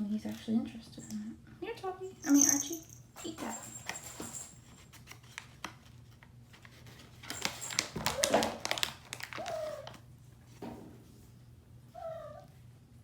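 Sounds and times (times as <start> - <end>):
treat pouch crinkling: 5.1 - 10.0.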